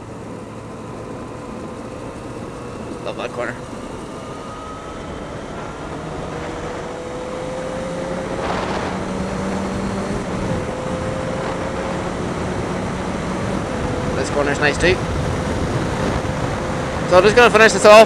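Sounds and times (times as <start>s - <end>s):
motorcycle engine pulling: 0.0s - 17.2s
wind noise on microphone: 8.2s - 17.5s.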